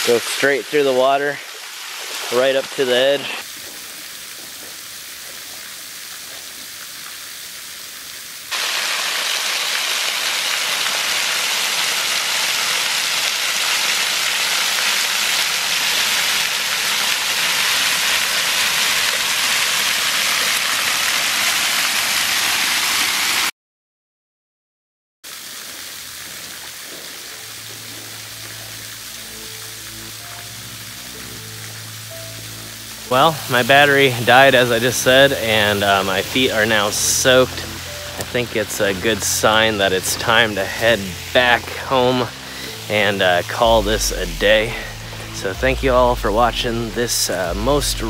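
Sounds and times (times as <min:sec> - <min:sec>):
waterfall splashing onto rock: 0:05.2 - 0:23.5, 0:25.3 - 0:45.3.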